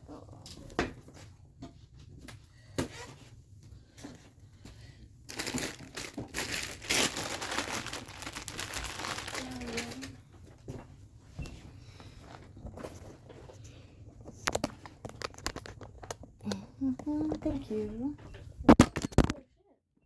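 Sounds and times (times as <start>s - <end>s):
plastic or paper crinkling: 5.3s - 10.2s.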